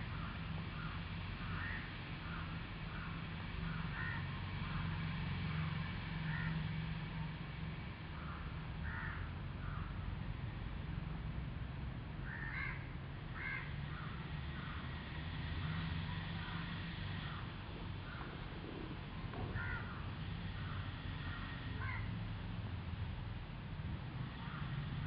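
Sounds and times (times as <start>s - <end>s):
steady low hum: 0.0s - 25.0s
birds giving short calls: 19.5s - 22.1s.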